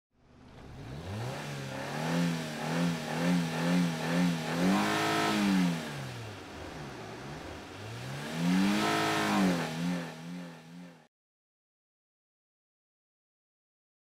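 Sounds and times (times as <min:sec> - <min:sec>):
car engine revving: 0:00.3 - 0:11.1.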